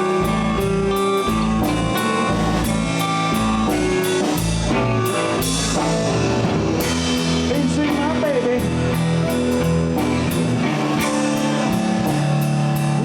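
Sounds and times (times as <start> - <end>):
bass: 0.0 - 13.0
drum kit steady beat: 0.0 - 13.0
guitar lines: 0.0 - 13.0.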